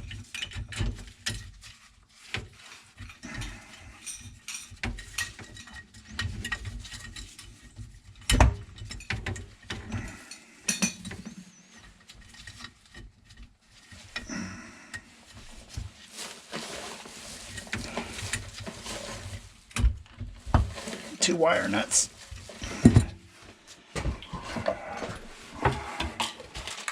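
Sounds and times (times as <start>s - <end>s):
tools clinking and scraping: 8.6s - 14.3s.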